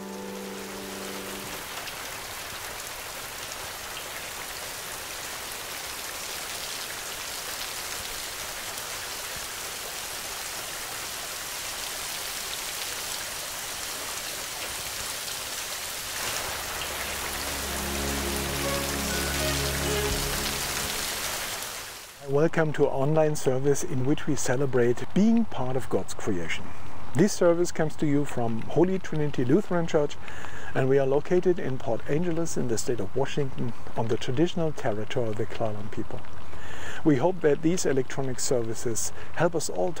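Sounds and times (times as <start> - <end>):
low sustained note: 0.0 - 1.6, 16.3 - 21.6
soft instrumental music: 0.0 - 1.6, 16.5 - 21.6
steady rain falling: 0.0 - 22.3, 27.2 - 40.0.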